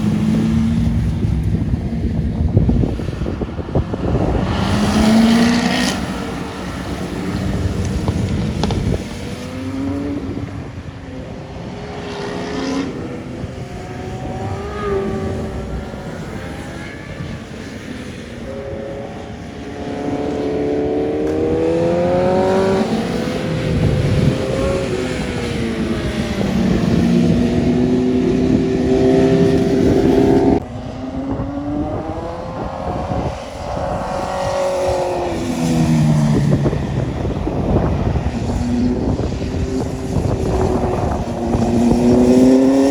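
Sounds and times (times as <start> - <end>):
car engine accelerating hard: 0.0 - 42.9
road noise rumble: 0.0 - 42.9.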